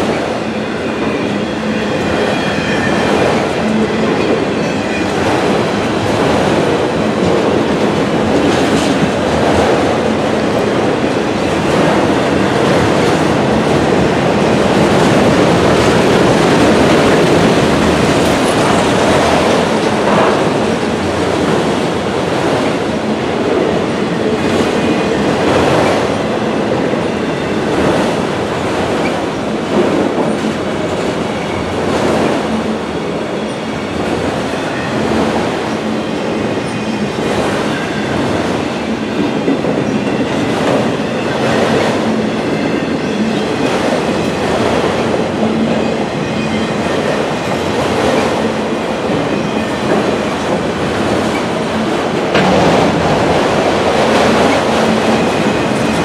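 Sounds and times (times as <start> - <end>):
freight train rumbling: 0.0 - 56.0
wheel trucks clacking: 49.9 - 56.0.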